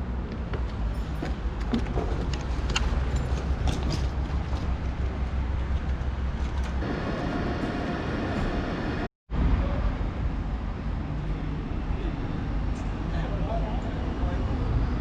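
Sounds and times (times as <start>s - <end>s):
train rumble: 0.3s - 10.6s
steady whine: 6.8s - 9.1s.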